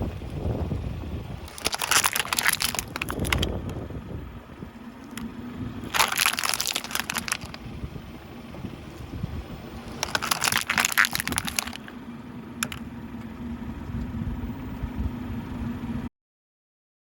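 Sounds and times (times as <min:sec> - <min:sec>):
car engine running: 0:00.0 - 0:16.1
lamp cups crunching under a tyre: 0:01.4 - 0:03.8, 0:05.0 - 0:07.6, 0:09.8 - 0:12.0, 0:12.6 - 0:12.8.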